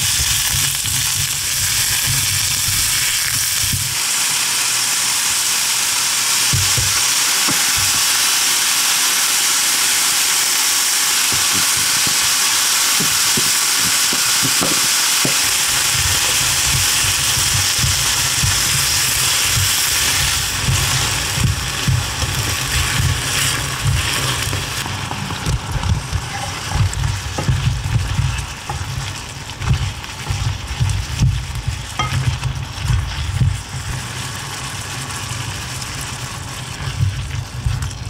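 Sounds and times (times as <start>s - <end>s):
vegetables sizzling in a pan: 0.0s - 38.0s
spatula knocking and scraping: 13.0s - 34.0s.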